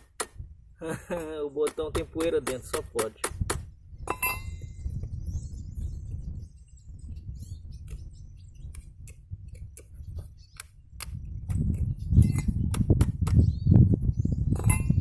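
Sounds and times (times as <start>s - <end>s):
sharp clicks and taps: 1.6s - 3.7s, 10.6s - 11.8s.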